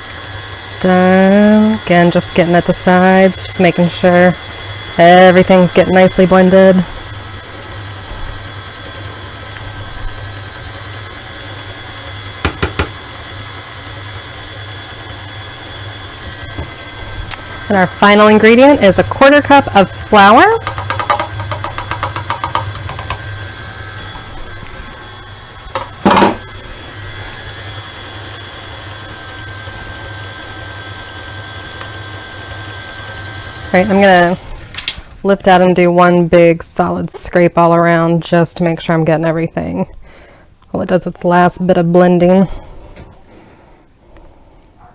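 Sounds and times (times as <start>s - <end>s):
stand mixer running: 0.0s - 34.6s
loud knock: 12.4s - 13.0s, 25.8s - 26.4s.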